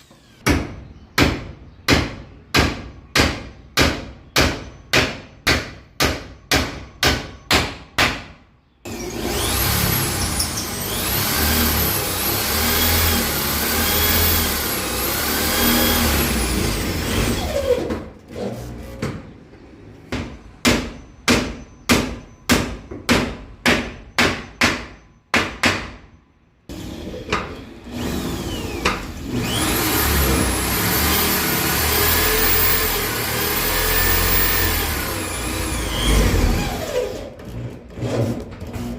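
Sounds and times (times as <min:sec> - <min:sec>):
hammer striking nails: 0:00.4 - 0:08.4, 0:20.1 - 0:26.1
electric drill running: 0:08.9 - 0:17.6, 0:27.7 - 0:37.0.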